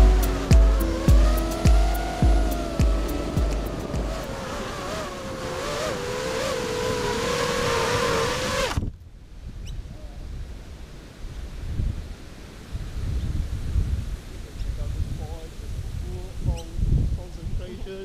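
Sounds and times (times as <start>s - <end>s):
drone motors whining: 0.0s - 8.8s
faint wind noise: 0.0s - 18.0s.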